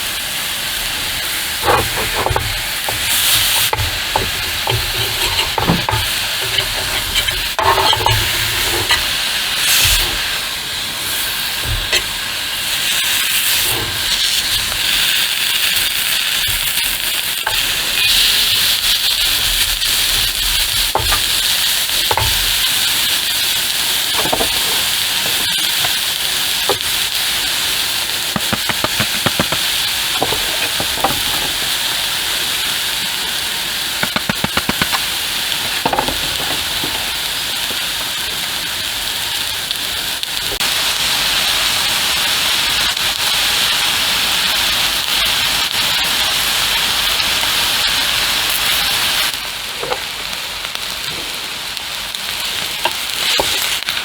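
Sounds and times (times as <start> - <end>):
rain falling: 15.8 - 54.0
raindrops tapping: 24.0 - 27.2, 27.8 - 32.0, 33.9 - 38.4.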